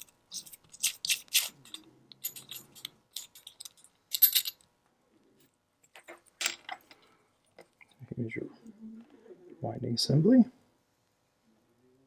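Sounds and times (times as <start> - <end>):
watch parts and tools clinking: 0.0 - 4.7.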